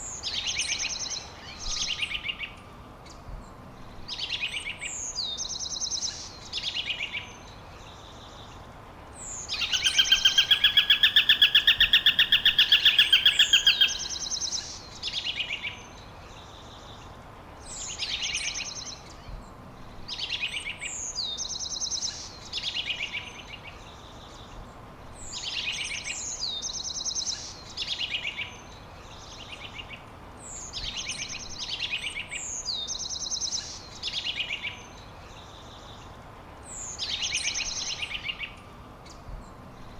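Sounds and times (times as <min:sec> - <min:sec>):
songbird singing: 0:00.0 - 0:39.9
loud rapid bird trill: 0:09.3 - 0:14.8.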